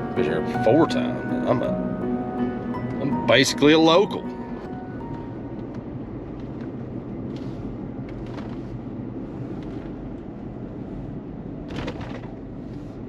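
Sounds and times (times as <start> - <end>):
road and engine rumble in cab: 5.4 - 13.0.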